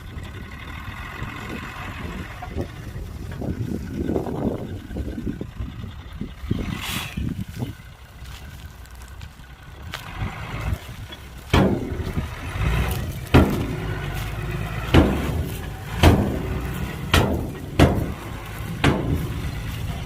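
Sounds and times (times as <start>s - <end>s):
heavy machinery engine running: 0.0s - 20.0s
loud metallic bangs and thuds: 11.2s - 20.0s.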